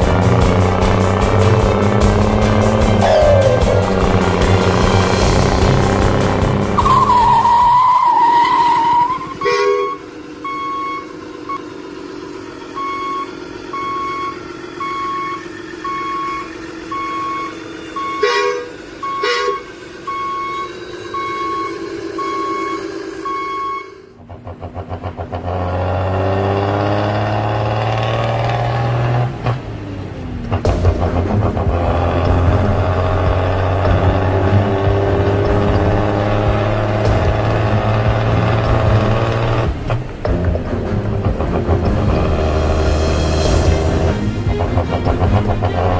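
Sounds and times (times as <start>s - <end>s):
reversing alarm beeping: 0.0s - 11.8s, 12.4s - 24.2s
engine running: 0.0s - 45.9s.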